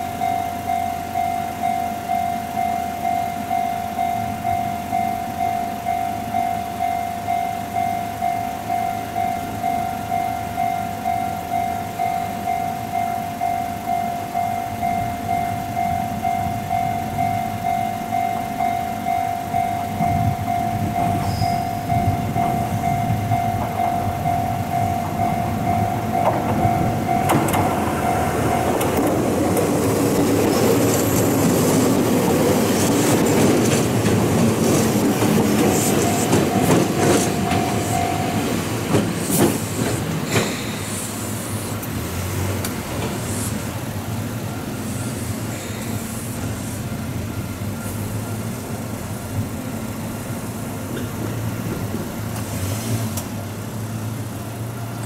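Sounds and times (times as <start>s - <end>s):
level-crossing warning bell: 0.0s - 41.8s, 43.2s - 51.4s
high wheel squealing: 0.0s - 49.1s
train wheels clicking over rail joints: 11.0s - 53.5s.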